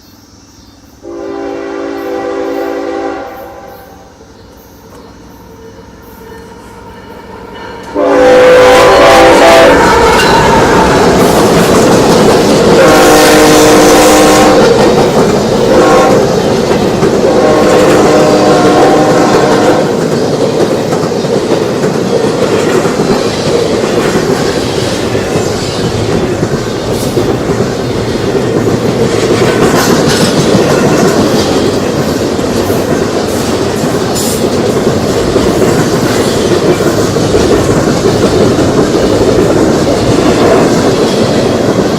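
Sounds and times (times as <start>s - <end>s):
train rumbling past: 0.0s - 41.9s
locomotive air horn: 1.0s - 4.0s, 7.9s - 11.0s, 12.8s - 14.8s, 15.7s - 16.4s, 17.2s - 20.0s
wheels clacking on rail joints: 9.8s - 41.9s.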